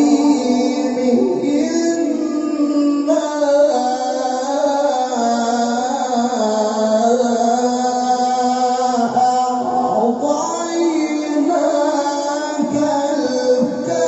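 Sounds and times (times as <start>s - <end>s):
man chanting long melodic note: 0.0s - 6.3s.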